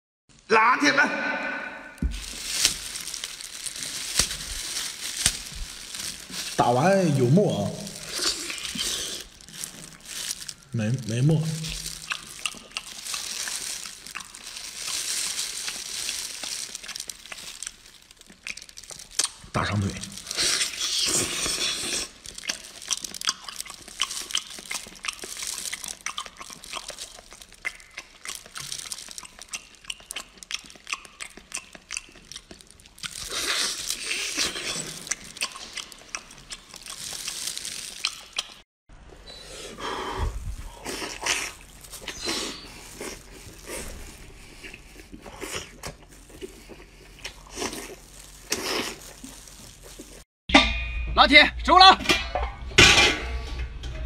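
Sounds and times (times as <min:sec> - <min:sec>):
wet chewing and smacking: 0:02.0 - 0:39.2, 0:40.2 - 0:50.3
sucking sounds: 0:39.2 - 0:45.8.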